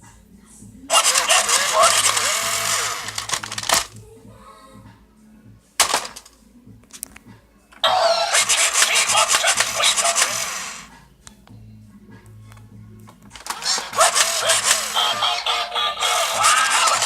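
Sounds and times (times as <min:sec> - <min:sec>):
toy truck rasping noise: 0:00.9 - 0:03.9, 0:07.8 - 0:10.9, 0:13.4 - 0:17.0.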